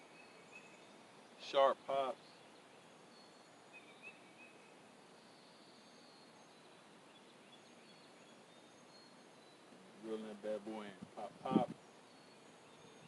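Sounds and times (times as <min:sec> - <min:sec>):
faint high chirps: 0:01.6 - 0:11.0.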